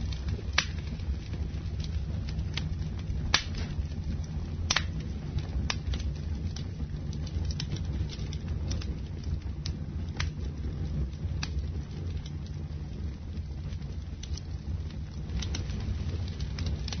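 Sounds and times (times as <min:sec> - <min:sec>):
fire low rumble: 0:00.0 - 0:17.0
wood crackling and popping: 0:00.0 - 0:17.0.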